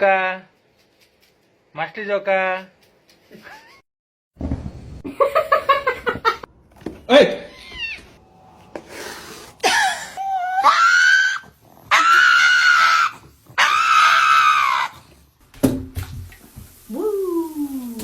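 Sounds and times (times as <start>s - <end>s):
falling cry: 8.8s - 15.0s
loud high screams: 9.6s - 15.0s.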